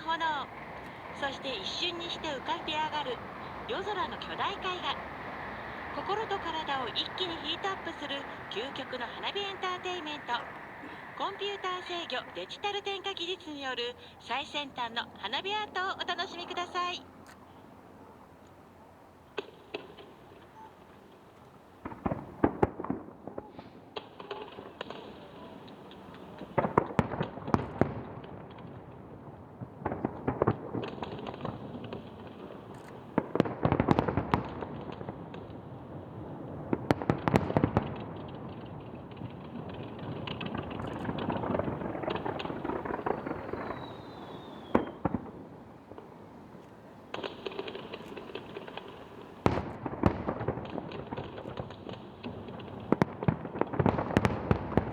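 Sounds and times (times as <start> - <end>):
firework shells bursting: 0.0 - 13.8, 36.6 - 54.9
firework crackling: 0.0 - 17.1, 19.3 - 54.9
falling firework whistle: 40.6 - 45.8.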